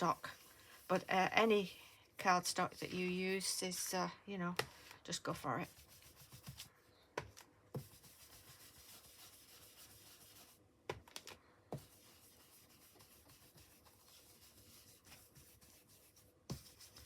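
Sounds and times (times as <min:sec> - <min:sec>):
brush rubbing on cardstock: 0:00.0 - 0:01.9, 0:05.5 - 0:06.7, 0:07.8 - 0:10.6, 0:11.8 - 0:17.0.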